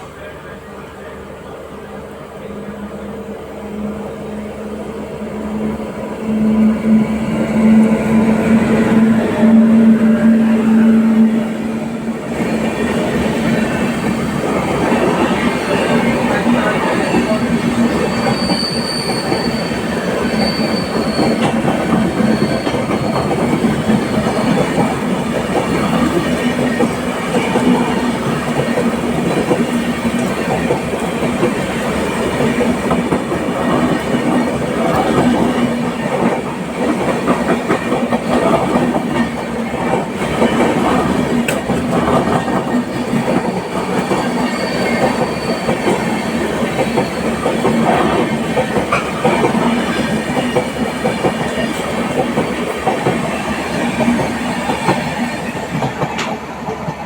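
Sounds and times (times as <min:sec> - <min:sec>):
train wheels clattering on rails: 0:06.3 - 0:57.0
faint high wheel squeal: 0:15.6 - 0:24.8, 0:43.4 - 0:47.7.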